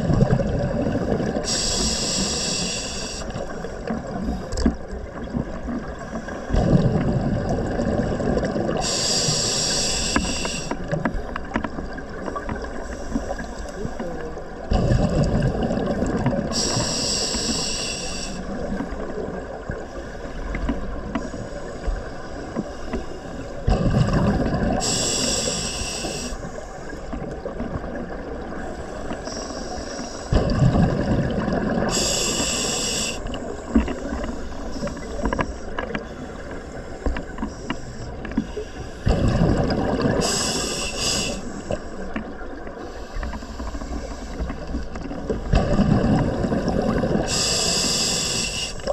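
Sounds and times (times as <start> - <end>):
exhaled bubbles underwater: 0.0 - 48.9
regulator air hiss: 1.4 - 3.5, 8.8 - 10.8, 16.5 - 18.6, 24.8 - 27.0, 28.8 - 30.4, 31.9 - 33.6, 40.2 - 42.1, 47.2 - 48.9.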